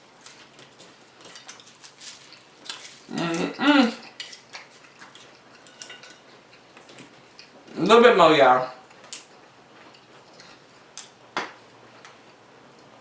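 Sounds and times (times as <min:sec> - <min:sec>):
cutlery clinking on plate: 0:01.2 - 0:06.4.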